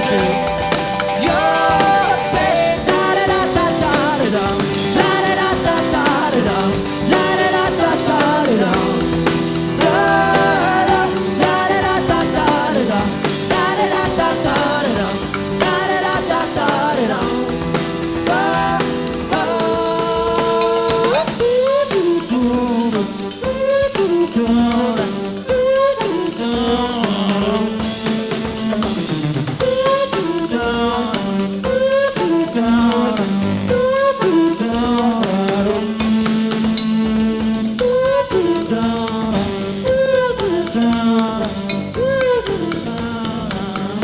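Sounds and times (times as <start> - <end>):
sliding melodic riff: 0.0 - 21.4
drum kit beat: 0.0 - 44.0
rock band playing live: 0.0 - 44.0.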